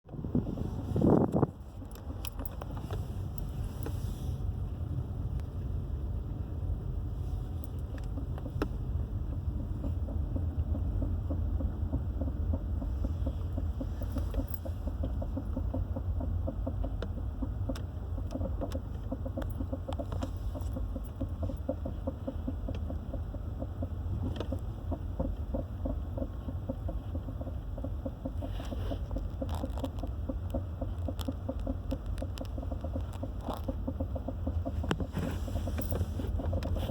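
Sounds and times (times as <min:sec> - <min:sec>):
vehicle interior rumble: 0:00.0 - 0:36.9
rapid rhythmic knocking: 0:07.7 - 0:36.9.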